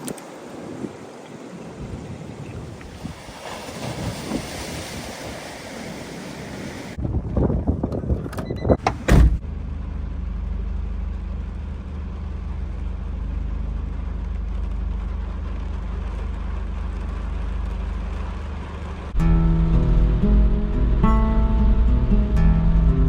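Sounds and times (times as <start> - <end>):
wind buffeting: 0.0 - 8.8.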